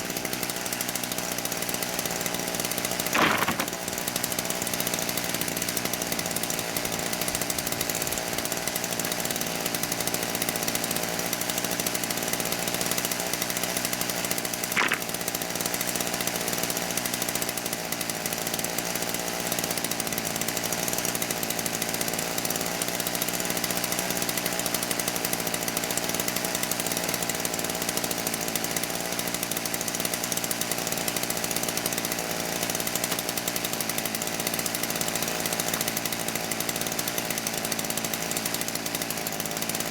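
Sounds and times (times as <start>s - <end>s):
chainsaw cutting wood: 0.0s - 39.9s
short sharp click: 3.2s - 3.8s, 14.8s - 15.1s.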